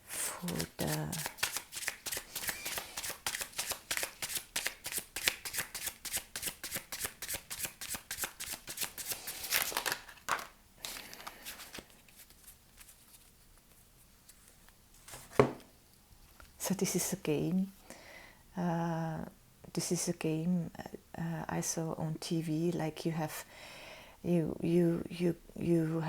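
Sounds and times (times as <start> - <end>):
soft card slides: 0.4 - 4.4
cards riffling: 0.4 - 13.0.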